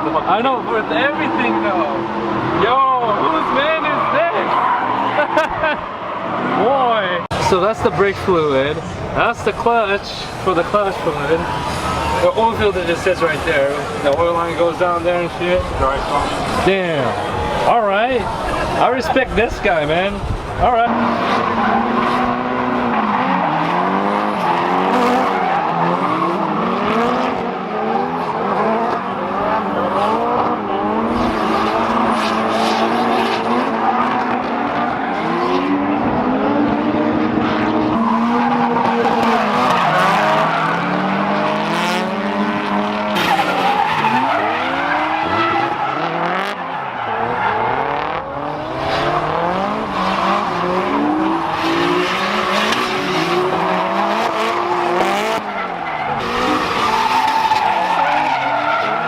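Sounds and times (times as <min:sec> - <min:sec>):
car engines revving: 0:00.0 - 0:59.0
tyres squealing: 0:42.7 - 0:59.0.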